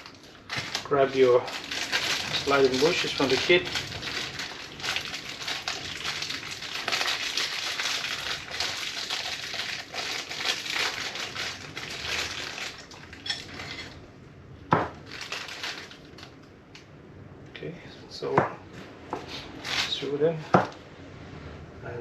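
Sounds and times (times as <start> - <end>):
packaging crinkling and rustling: 0.0 - 14.0, 14.9 - 16.4, 19.6 - 20.1.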